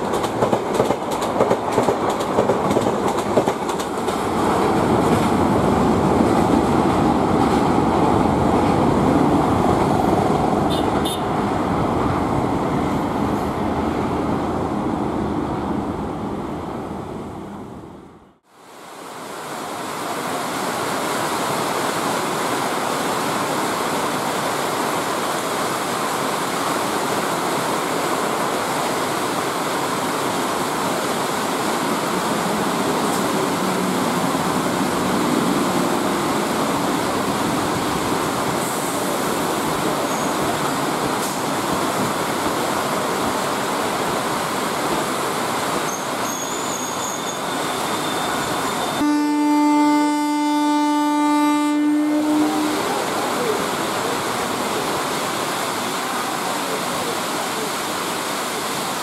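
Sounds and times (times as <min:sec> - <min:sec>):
heavy rain pouring: 0:18.5 - 0:59.0.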